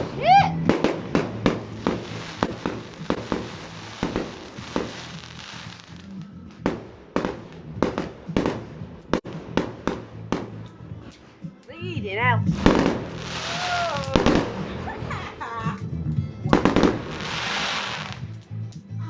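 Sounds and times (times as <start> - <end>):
fireworks hiss: 0.0 - 10.6, 12.5 - 15.4, 16.5 - 18.4
sharp firework bangs: 0.0 - 11.6, 12.5 - 15.4, 16.5 - 18.4
fireworks crackling bangs: 0.0 - 18.6.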